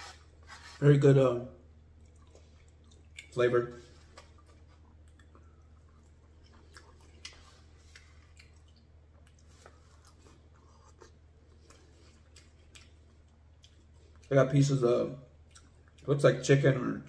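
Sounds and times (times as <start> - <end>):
person chewing food: 1.9 - 14.3, 15.3 - 16.1.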